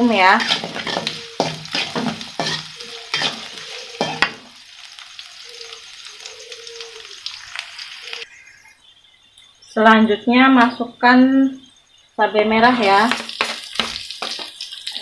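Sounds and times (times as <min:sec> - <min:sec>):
metal spatula scraping a wok: 0:00.0 - 0:04.5
shallots sizzling in oil: 0:00.0 - 0:08.7, 0:12.6 - 0:15.0.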